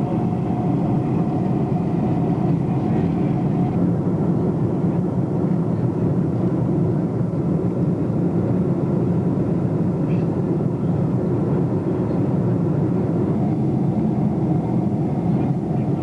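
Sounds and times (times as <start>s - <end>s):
jet airliner engines roaring: 0.0s - 16.0s.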